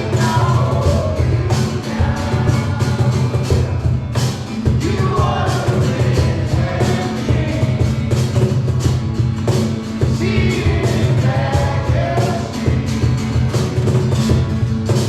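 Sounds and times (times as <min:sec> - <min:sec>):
person singing: 0:00.0 - 0:03.6, 0:04.8 - 0:08.2
drums: 0:00.0 - 0:15.0
live rock band playing: 0:00.0 - 0:15.0.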